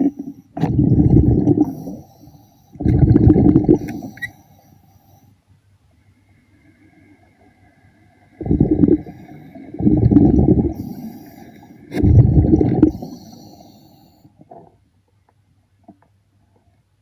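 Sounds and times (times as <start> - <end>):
underwater exhaled breath bubbling: 0.0 - 2.1, 2.8 - 4.3, 8.4 - 14.8.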